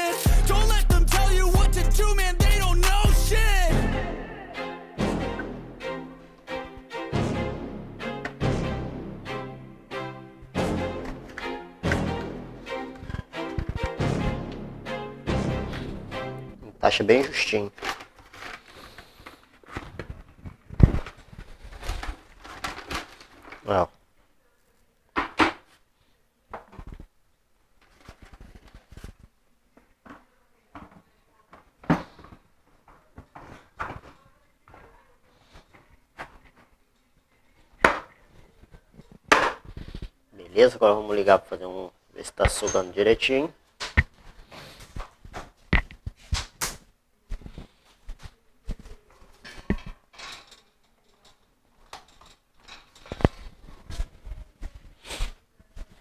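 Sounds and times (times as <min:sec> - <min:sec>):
hard objects clicking and knocking: 0:45.7 - 0:46.0.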